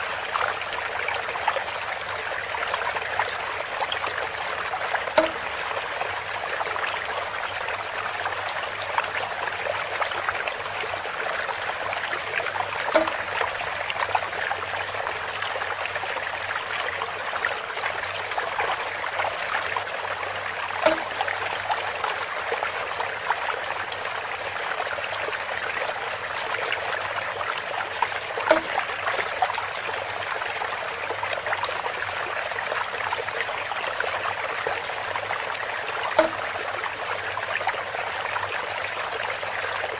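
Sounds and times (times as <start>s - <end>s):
water trickling and splashing: 0.0s - 39.9s
bamboo knock: 5.1s - 5.8s, 12.8s - 13.7s, 20.8s - 21.5s, 28.4s - 28.9s, 36.2s - 36.6s.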